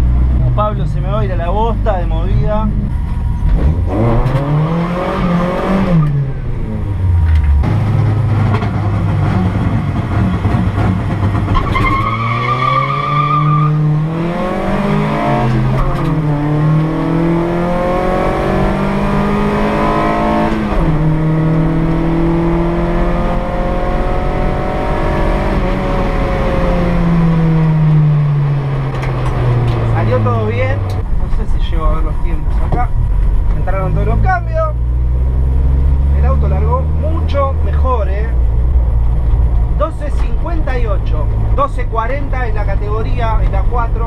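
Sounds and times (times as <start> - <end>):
race car engine revving: 0.0 - 44.0
tyre squeal: 11.5 - 13.9.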